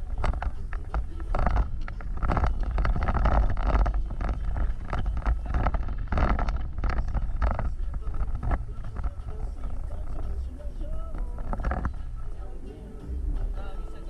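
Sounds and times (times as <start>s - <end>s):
vehicle rattles and creaks: 0.0s - 14.0s
vehicle rumbling off-road: 0.0s - 14.0s.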